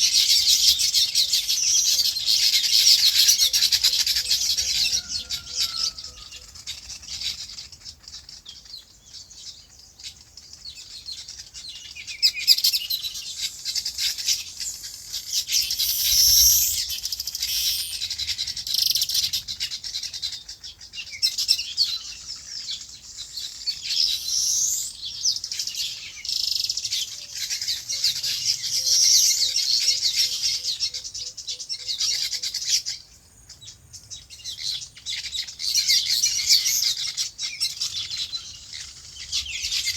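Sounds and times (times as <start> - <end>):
small birds chirping chorus: 0.0 - 39.9.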